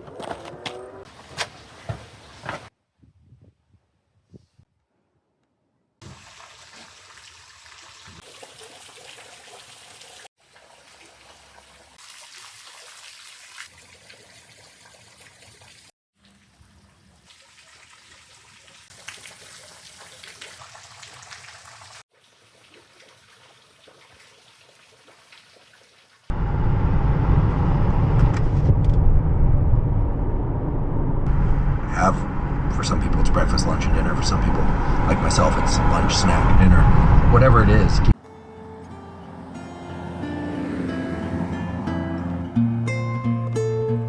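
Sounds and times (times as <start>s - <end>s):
trickling water: 6.0s - 26.3s.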